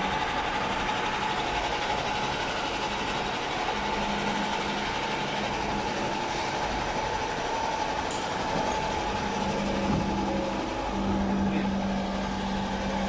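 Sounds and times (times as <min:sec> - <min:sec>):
station background noise: 0:00.0 - 0:13.0
train equipment whine and hum: 0:00.0 - 0:13.0.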